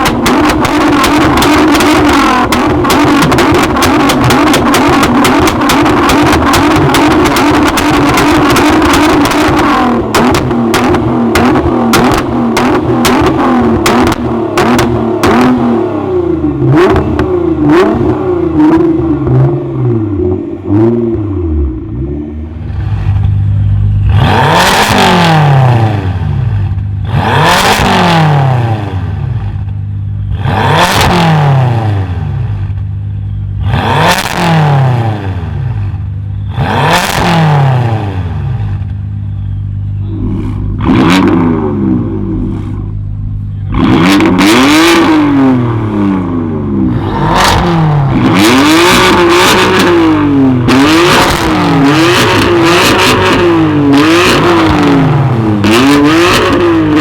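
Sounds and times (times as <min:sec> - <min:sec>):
car engine revving: 0:00.0 - 0:57.0
engine idle hum: 0:38.2 - 0:51.8.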